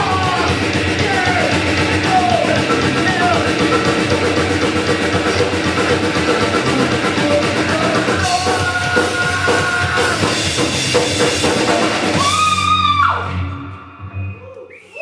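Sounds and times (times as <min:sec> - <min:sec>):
shouted vocals: 0:00.0 - 0:04.0, 0:12.1 - 0:13.4
drum kit: 0:00.0 - 0:14.6
electric guitar: 0:00.0 - 0:14.6.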